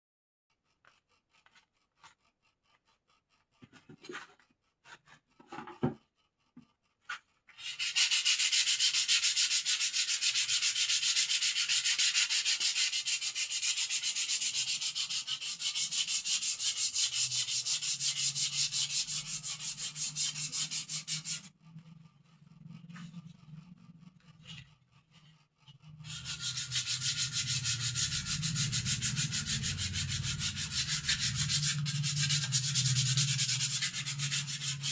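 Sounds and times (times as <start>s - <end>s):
sandpaper rubbing on wood: 7.6s - 21.5s, 26.0s - 34.9s.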